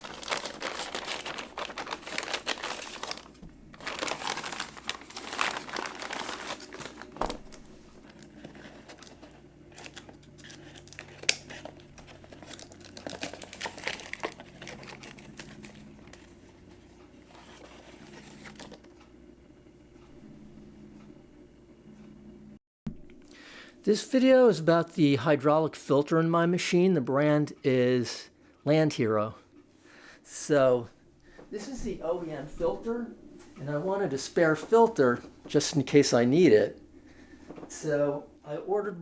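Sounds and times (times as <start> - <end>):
packaging crinkling and rustling: 0.0 - 19.0.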